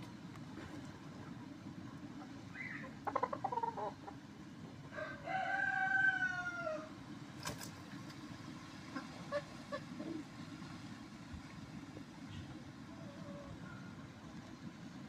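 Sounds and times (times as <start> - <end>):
low background noise: 0.0 - 15.0
chicken clucking: 2.6 - 4.2
rooster crowing: 4.9 - 6.9.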